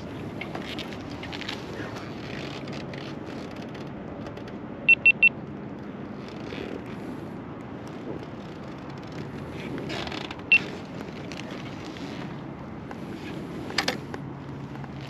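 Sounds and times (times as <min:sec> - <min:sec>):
motorcycle engine and wind noise: 0:00.0 - 0:15.0
quick high beeps: 0:04.9 - 0:05.3.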